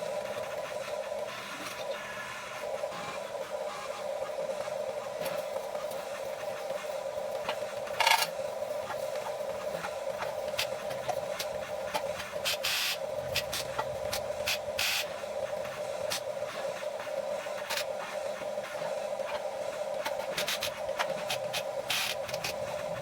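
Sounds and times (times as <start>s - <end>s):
toy excavator motors whirring: 7.4s - 15.1s, 20.0s - 23.0s.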